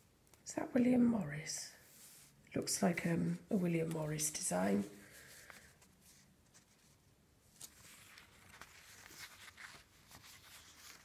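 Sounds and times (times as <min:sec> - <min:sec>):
paper pages rustling: 0:05.0 - 0:11.0.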